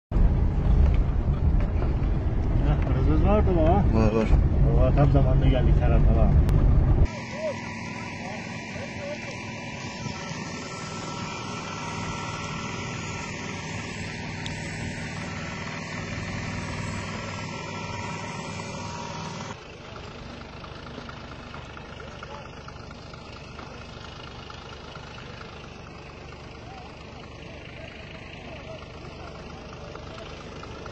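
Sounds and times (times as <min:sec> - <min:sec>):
vehicle engine running: 0:00.1 - 0:30.9.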